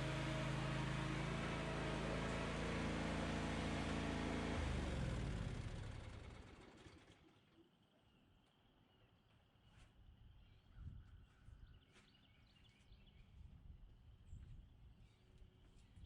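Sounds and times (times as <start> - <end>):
mower engine running: 0.0 - 7.3
engine spinning down: 0.0 - 7.5.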